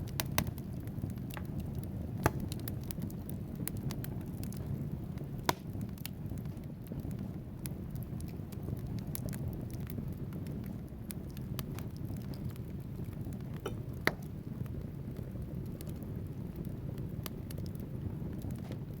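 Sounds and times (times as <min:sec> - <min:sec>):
logs crackling: 0:00.0 - 0:19.0
low rumble of flames: 0:00.0 - 0:19.0
loud fire pop: 0:02.2 - 0:02.6, 0:05.4 - 0:05.8, 0:13.6 - 0:14.4.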